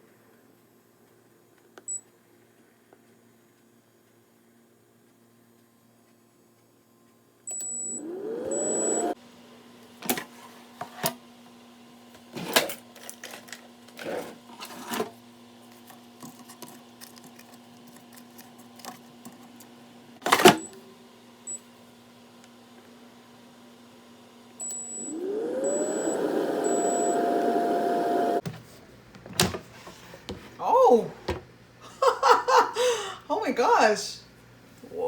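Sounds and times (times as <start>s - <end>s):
air fryer fan whirring: 7.5s - 28.6s.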